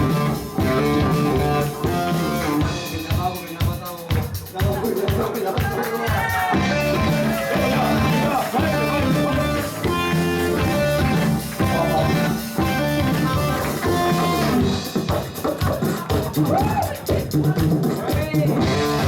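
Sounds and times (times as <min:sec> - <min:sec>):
electric guitar: 0:00.0 - 0:03.2, 0:06.0 - 0:17.4, 0:18.5 - 0:19.0
drum kit: 0:00.0 - 0:19.0.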